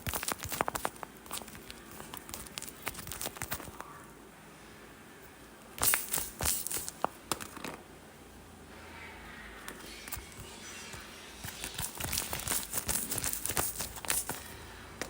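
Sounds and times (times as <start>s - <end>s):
paper crinkling and crackling: 0.0s - 4.0s, 11.4s - 14.5s.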